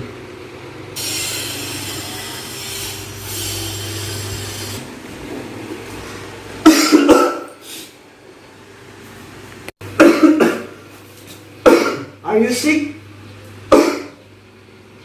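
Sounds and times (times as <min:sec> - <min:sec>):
person coughing: 0:06.6 - 0:07.6, 0:10.0 - 0:10.8, 0:11.6 - 0:12.2, 0:13.7 - 0:14.2.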